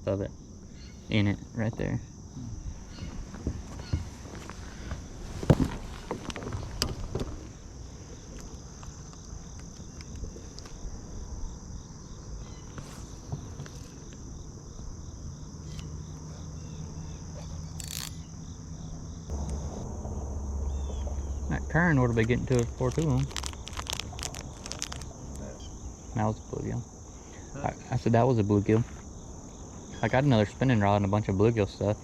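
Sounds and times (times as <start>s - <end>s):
faint low hum: 0.0s - 32.0s
insects droning: 0.0s - 32.0s.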